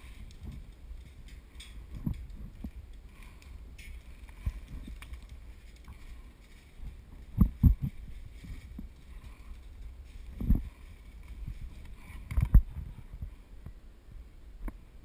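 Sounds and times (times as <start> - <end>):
wind rumble on microphone: 0.0 - 15.0
dull low thumps and knocks: 0.2 - 2.9, 5.9 - 13.3.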